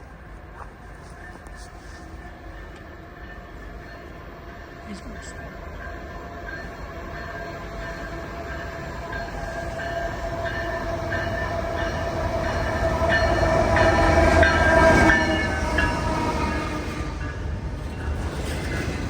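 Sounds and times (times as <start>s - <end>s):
locomotive engine running: 0.1s - 19.0s.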